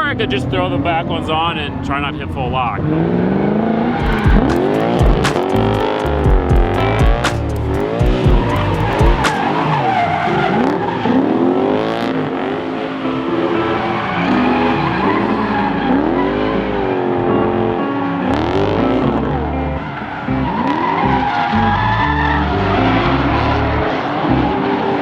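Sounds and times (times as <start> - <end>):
car engine revving: 2.8 - 25.0
sharp cracks: 4.4 - 6.2, 6.8 - 8.0, 8.6 - 9.6.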